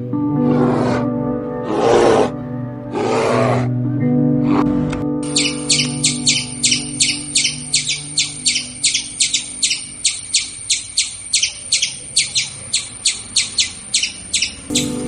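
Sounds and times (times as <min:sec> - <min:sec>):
bird chirping: 0:05.2 - 0:15.0.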